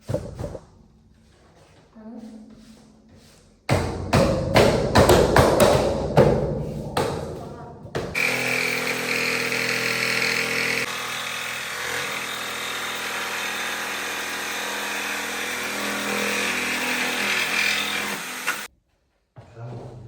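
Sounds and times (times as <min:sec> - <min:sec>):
electric power tool running: 0:08.2 - 0:18.7.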